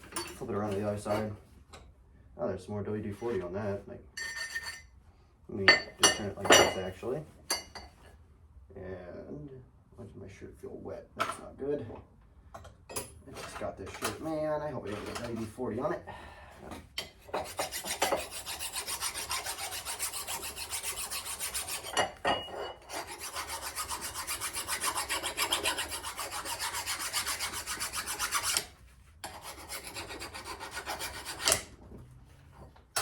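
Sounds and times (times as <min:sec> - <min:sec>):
scraping axe head by hand: 0:13.4 - 0:15.6, 0:17.0 - 0:31.8.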